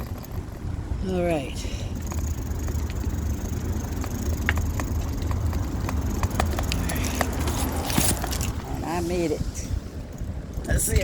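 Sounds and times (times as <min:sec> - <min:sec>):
bicycle clicks and rattles: 0:00.0 - 0:00.9, 0:01.9 - 0:08.7
wind rumble on microphone: 0:00.0 - 0:11.0.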